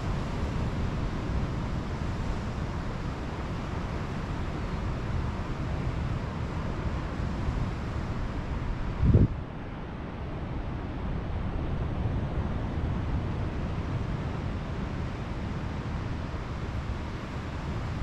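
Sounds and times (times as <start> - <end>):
wind on microphone: 8.8 - 9.4.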